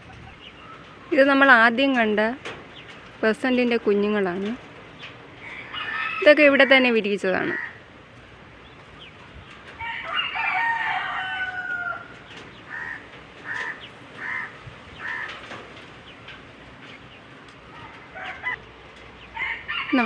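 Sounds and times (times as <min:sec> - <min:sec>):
chickens clucking: 0:00.0 - 0:20.0
rooster crowing: 0:05.4 - 0:07.8, 0:09.8 - 0:14.5, 0:17.7 - 0:18.6, 0:19.4 - 0:20.0.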